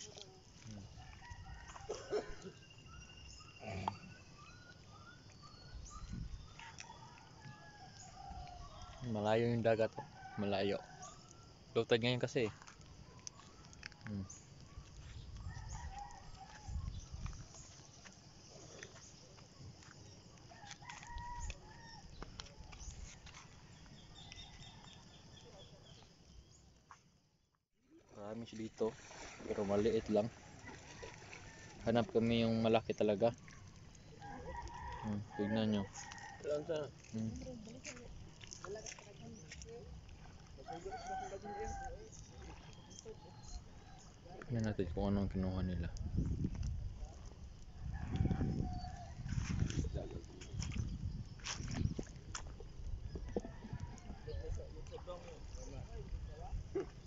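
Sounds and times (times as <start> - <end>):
rooster crowing faintly: 0.7 - 2.6, 15.4 - 17.0, 20.4 - 23.4, 34.0 - 37.4
wind rumble on microphone: 5.7 - 6.6, 14.1 - 17.9, 44.7 - 57.0.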